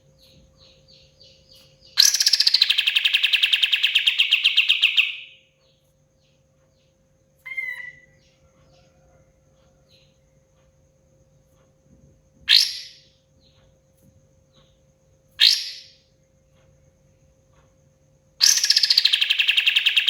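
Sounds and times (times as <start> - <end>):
songbird rattling trill: 0.1 - 8.4, 12.5 - 13.8, 15.4 - 16.0, 18.4 - 20.0.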